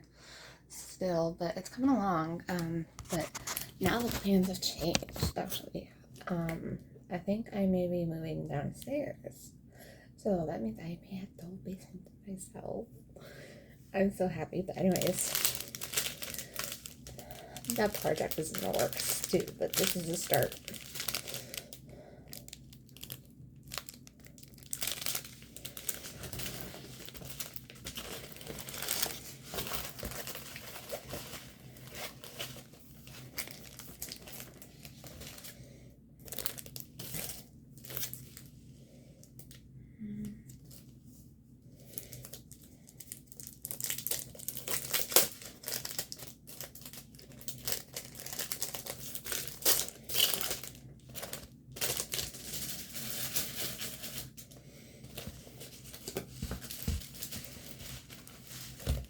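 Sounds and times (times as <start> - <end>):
plastic packaging crinkling: 2.5 - 5.4, 14.8 - 35.6, 36.2 - 38.5, 41.8 - 59.0.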